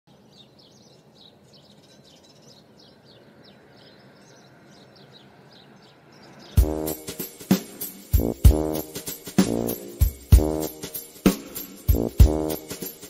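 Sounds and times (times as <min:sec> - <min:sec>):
small birds chirping: 0:00.1 - 0:08.0.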